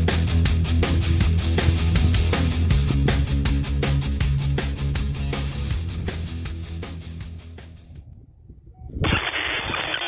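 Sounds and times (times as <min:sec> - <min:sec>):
rock music: 0:00.0 - 0:07.7.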